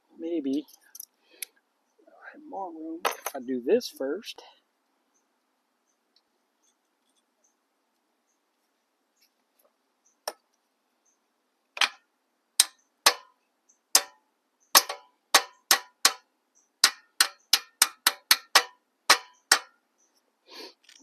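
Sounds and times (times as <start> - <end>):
hammer striking metal: 12.6 - 13.3, 14.0 - 14.2, 14.8 - 19.7.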